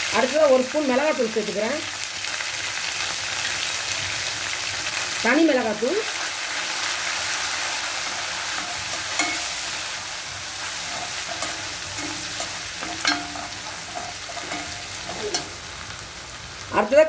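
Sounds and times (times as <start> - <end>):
paste sizzling in hot oil: 0.0 - 16.8
metal spatula scraping pan: 8.0 - 15.7.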